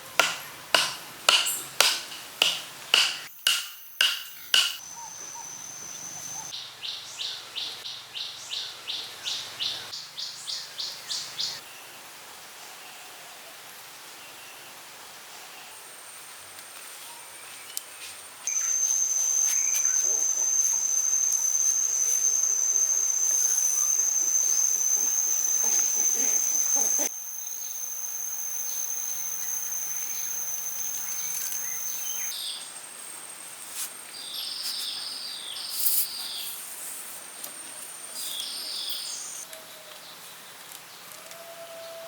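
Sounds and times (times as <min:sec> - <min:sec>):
insect high-pitched trill: 0:02.9 - 0:06.5, 0:18.5 - 0:32.4
bird chirps: 0:04.0 - 0:11.6, 0:18.5 - 0:32.7.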